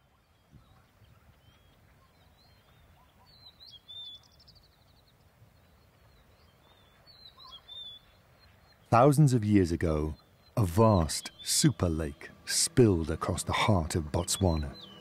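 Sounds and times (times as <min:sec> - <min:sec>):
bird chirps: 0:00.0 - 0:15.0
bird trill: 0:06.2 - 0:15.0.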